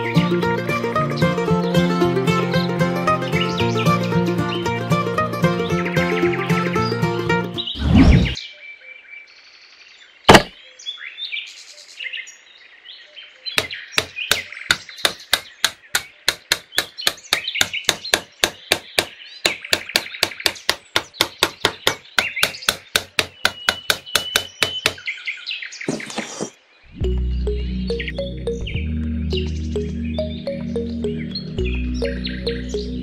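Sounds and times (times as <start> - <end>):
birds chirping faintly: 2.4 - 33.0
small hammer tapping wood: 13.6 - 25.0.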